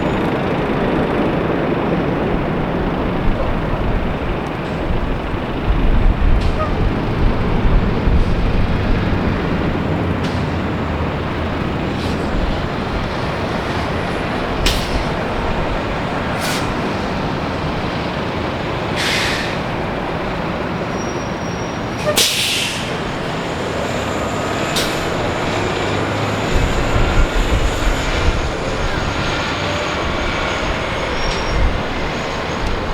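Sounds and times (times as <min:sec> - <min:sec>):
heavy vehicle traffic rumble: 0:00.0 - 0:32.9
short sharp hisses: 0:16.4 - 0:16.9, 0:19.0 - 0:19.7, 0:22.1 - 0:23.0.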